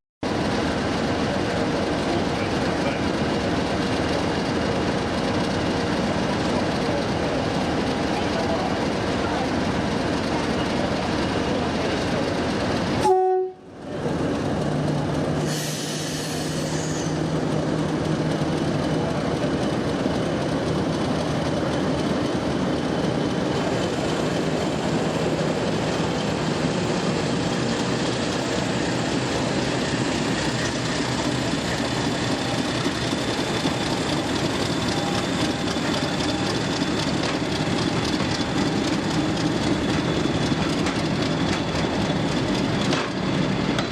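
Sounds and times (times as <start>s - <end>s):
diesel locomotive running: 0.2s - 43.9s
train horn blast: 13.0s - 13.7s.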